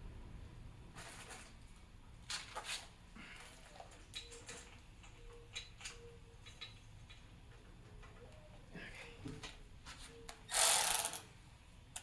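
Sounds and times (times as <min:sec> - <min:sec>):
metal parts and tools clicking: 0:03.6 - 0:07.3.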